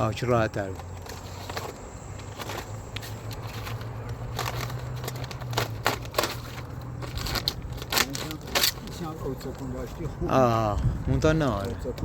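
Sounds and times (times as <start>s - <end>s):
clicks and crackling rustles: 0.5s - 9.7s.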